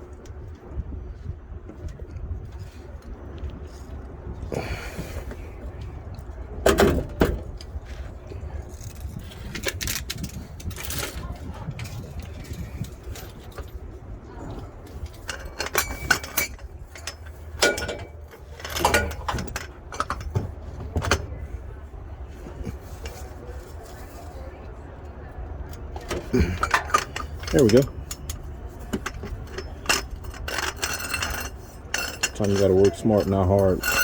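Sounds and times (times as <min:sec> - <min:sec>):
hand tools clicking and knocking: 0:14.8 - 0:21.4, 0:25.8 - 0:34.0.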